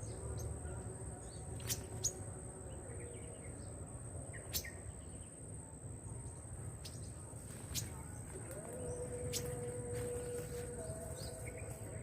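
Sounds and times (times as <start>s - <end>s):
low outdoor rumble: 0.0s - 12.0s
small birds chirping: 0.0s - 12.0s
high-pitched insect drone: 7.5s - 12.0s.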